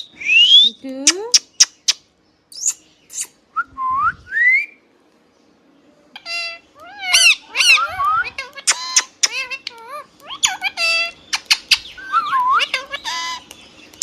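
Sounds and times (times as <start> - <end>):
parakeet whistling and chirping: 2.6 - 3.3, 6.3 - 14.0
parakeet buzzy call: 6.2 - 13.4.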